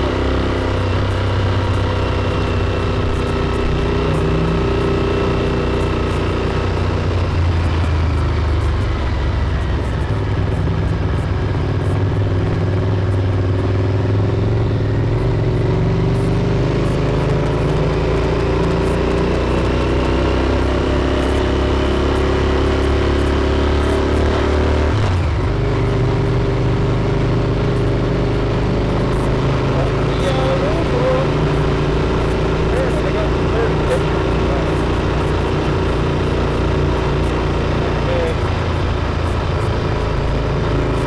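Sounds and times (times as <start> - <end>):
motorcycle engine running: 0.0 - 41.0
road and wind noise: 0.0 - 41.0.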